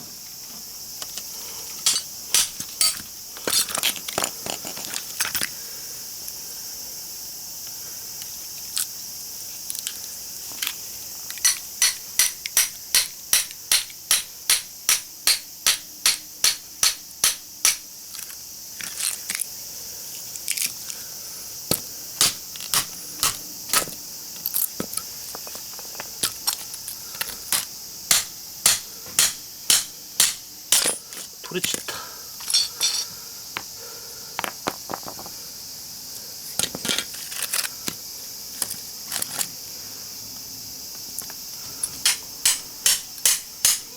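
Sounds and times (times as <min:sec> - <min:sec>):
hammer striking chisel on steel: 0:01.9 - 0:03.0, 0:11.4 - 0:17.8, 0:28.1 - 0:31.0, 0:42.0 - 0:43.9.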